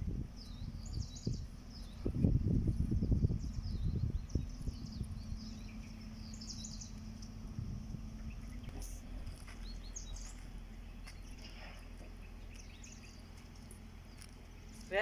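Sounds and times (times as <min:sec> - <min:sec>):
low background hum: 0:00.0 - 0:15.0
small birds chirping: 0:00.2 - 0:15.0.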